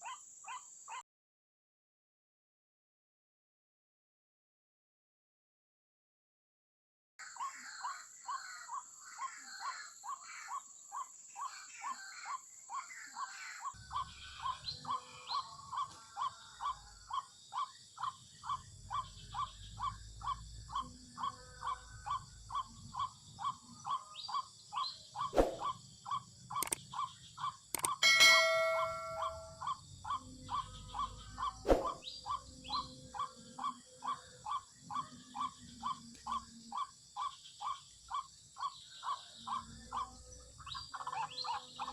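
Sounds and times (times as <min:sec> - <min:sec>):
sharp clicks: 0:26.6 - 0:26.9, 0:27.7 - 0:28.0
waterhen calling: 0:27.8 - 0:29.6.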